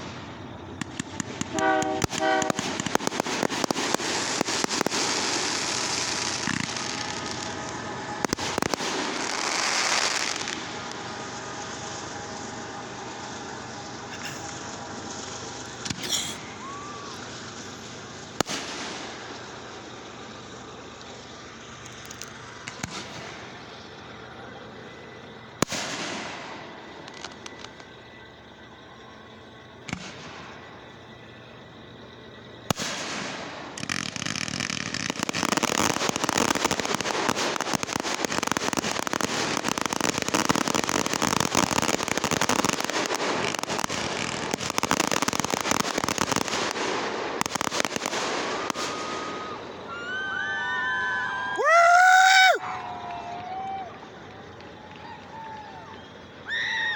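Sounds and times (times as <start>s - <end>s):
loud rising pitched firework: 0.0s - 23.9s, 25.6s - 28.8s, 32.7s - 52.6s
firework bangs: 0.0s - 28.8s, 29.4s - 56.4s
fireworks crackling: 0.0s - 56.9s.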